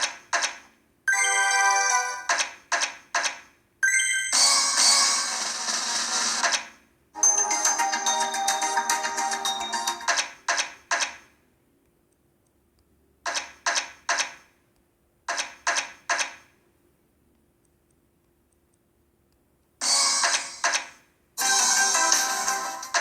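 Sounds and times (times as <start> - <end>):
slot machine game music: 1.1 - 2.3, 3.8 - 5.6, 7.2 - 10.1, 19.8 - 20.6, 21.4 - 23.0.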